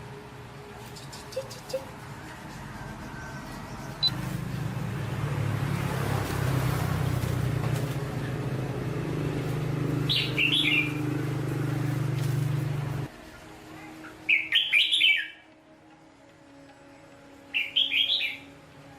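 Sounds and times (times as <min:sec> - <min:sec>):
small bird chirping: 0:10.0 - 0:11.0.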